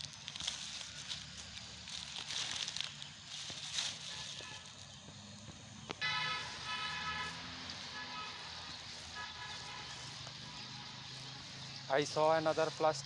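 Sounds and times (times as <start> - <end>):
motor vehicle passing: 3.9 - 13.0.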